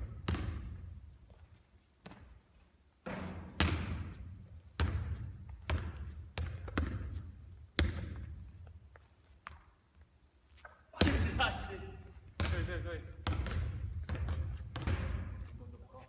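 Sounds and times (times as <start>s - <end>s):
basketball bouncing with echo: 0.0s - 1.0s, 3.0s - 8.7s, 10.9s - 15.9s.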